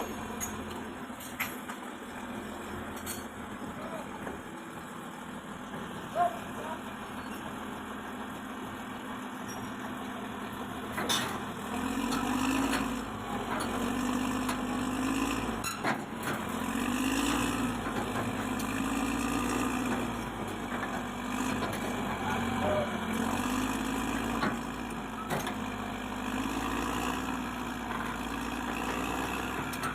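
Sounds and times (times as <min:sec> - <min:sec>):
diesel engine revving: 0:00.0 - 0:01.2, 0:10.4 - 0:29.9.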